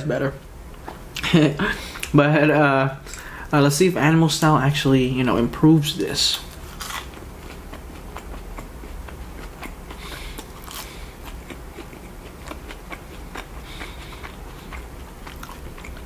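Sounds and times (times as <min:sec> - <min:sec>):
mouth chewing french fry: 0:06.2 - 0:16.0.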